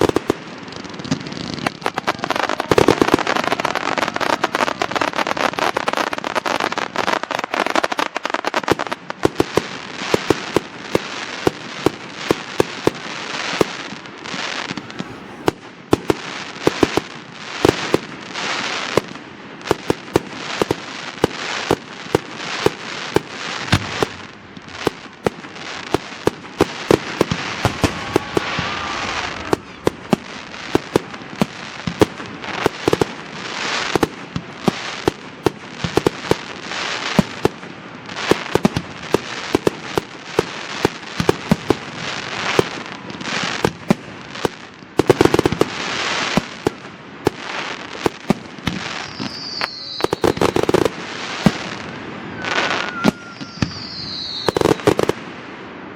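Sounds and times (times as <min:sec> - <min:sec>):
fireworks bangs and crackling: 0:00.0 - 0:55.9
firework whistle: 0:01.0 - 0:09.0, 0:13.4 - 0:17.0, 0:26.8 - 0:33.8, 0:48.6 - 0:55.2.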